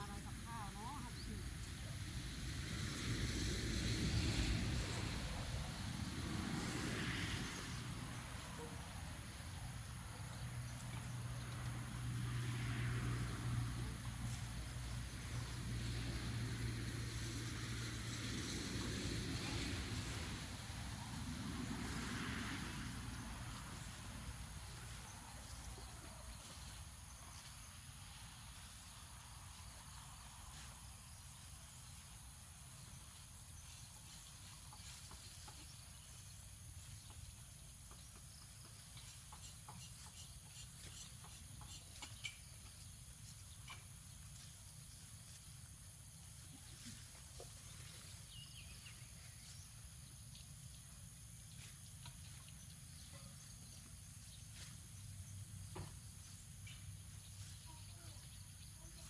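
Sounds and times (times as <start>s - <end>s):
passing engine: 0.0s - 29.0s.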